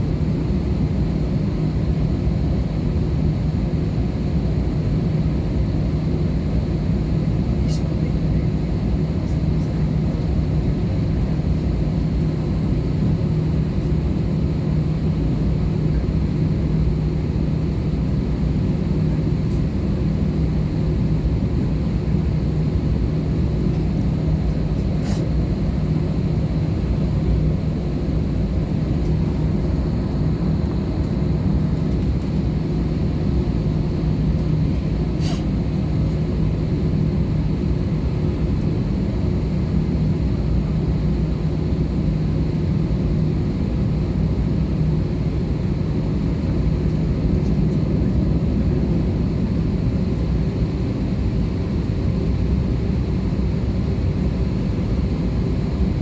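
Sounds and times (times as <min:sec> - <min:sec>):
jet engines droning: 0:00.0 - 0:56.0
steady low hum: 0:00.0 - 0:56.0.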